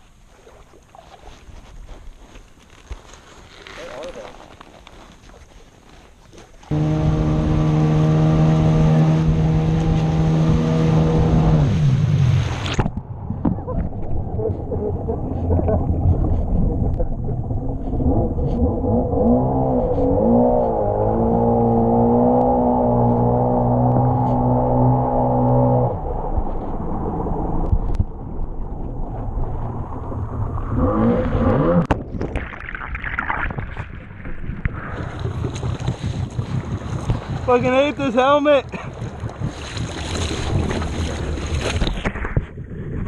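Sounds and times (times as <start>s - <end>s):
water noise: 0.0s - 43.0s
wind: 0.0s - 43.0s
jet ski engine running: 6.7s - 12.8s, 17.8s - 27.1s.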